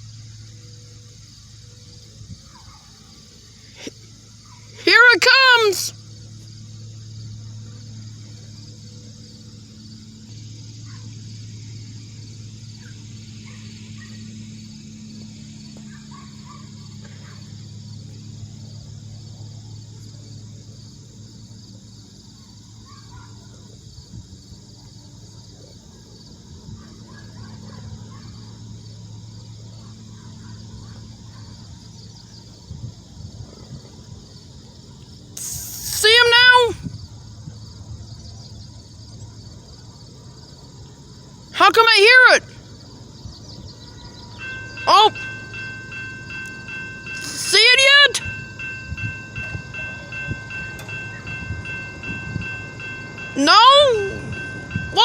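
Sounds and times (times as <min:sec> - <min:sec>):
high insect drone: 0:00.0 - 0:55.0
steady low hum: 0:05.9 - 0:22.0.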